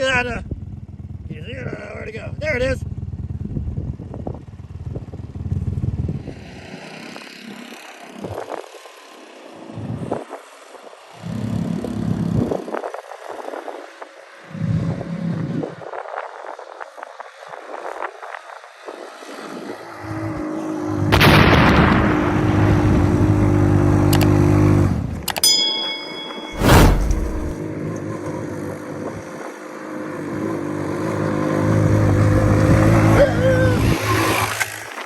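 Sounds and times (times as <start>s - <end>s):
go-kart engine revving: 29.9s - 34.9s.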